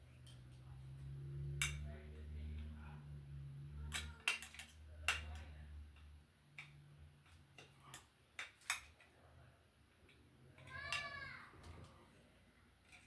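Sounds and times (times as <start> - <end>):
metal parts and tools clicking: 3.8 - 9.1.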